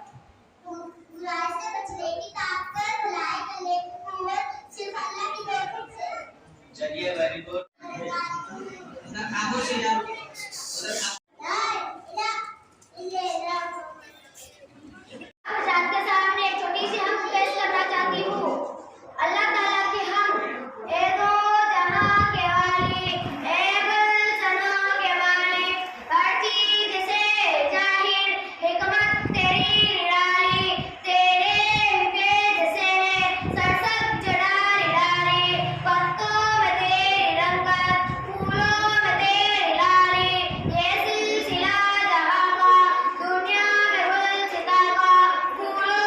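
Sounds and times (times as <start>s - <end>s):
child singing: 19.2s - 46.0s.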